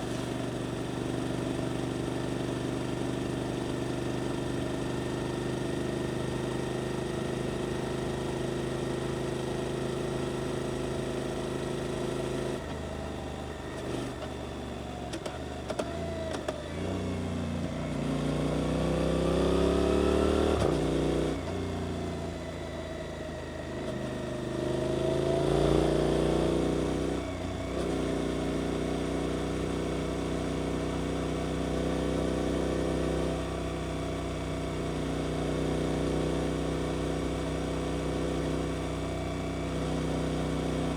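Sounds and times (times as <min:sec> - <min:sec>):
motorcycle engine revving: 0:15.2 - 0:40.9.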